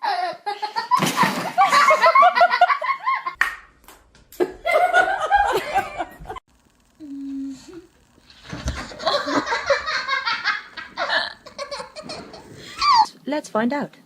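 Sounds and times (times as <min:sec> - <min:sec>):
people laughing: 0:00.5 - 0:03.4, 0:04.4 - 0:06.4, 0:08.9 - 0:13.0.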